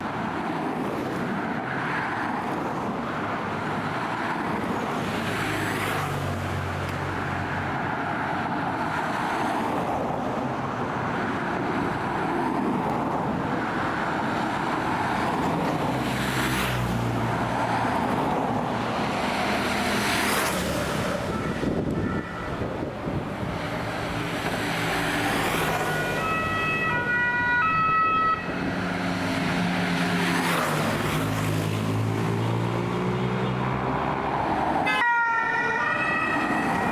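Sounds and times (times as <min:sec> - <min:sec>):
vehicles passing on road: 0:00.0 - 0:36.9.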